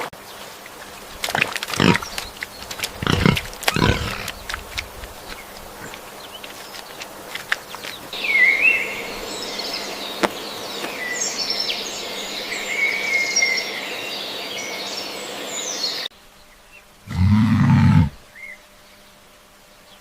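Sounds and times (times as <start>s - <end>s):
outdoor background hiss: 0.0s - 20.0s
small birds chirping: 0.0s - 20.0s.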